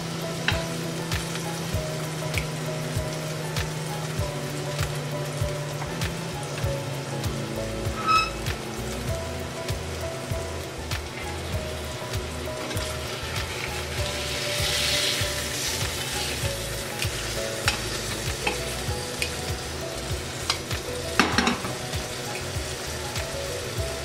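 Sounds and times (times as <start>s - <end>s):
fish fillet sizzling in a pan: 0.0s - 24.0s
metal spatula scraping a pan: 8.0s - 8.5s.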